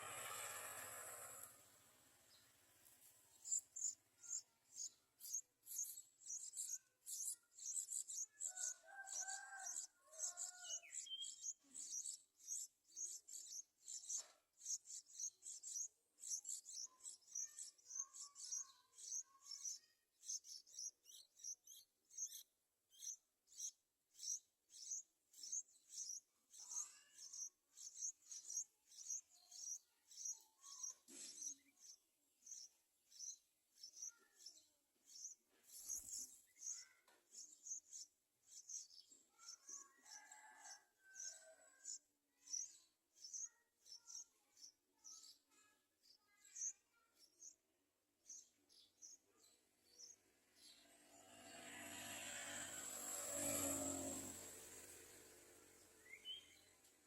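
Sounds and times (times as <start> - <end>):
bird nestling high-pitched peeps: 3.4 - 39.7.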